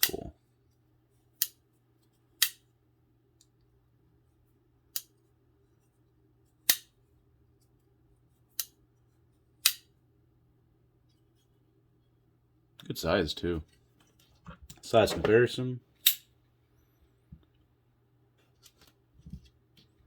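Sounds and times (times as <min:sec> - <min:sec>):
folding knife metallic clicks: 0:02.4 - 0:02.6, 0:09.6 - 0:09.8.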